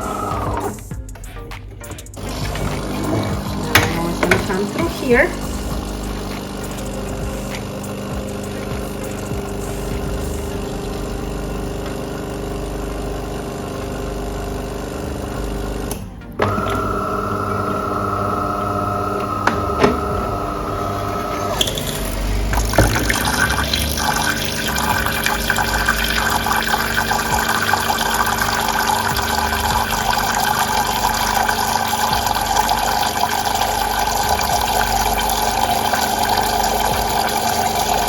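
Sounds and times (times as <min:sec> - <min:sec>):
espresso machine pump humming: 0:00.0 - 0:00.9, 0:02.2 - 0:38.0
water gushing into a pan: 0:02.2 - 0:15.0, 0:20.6 - 0:38.0.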